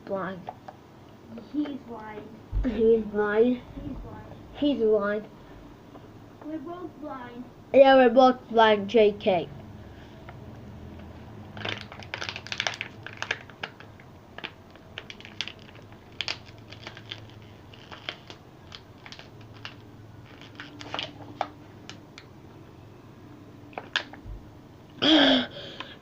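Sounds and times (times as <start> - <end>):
plastic bottle crinkling: 11.5 - 22.0.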